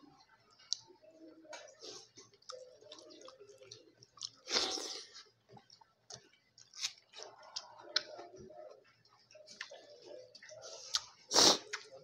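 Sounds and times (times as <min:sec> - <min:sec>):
close chewing with mouth smacks: 0:02.2 - 0:08.2.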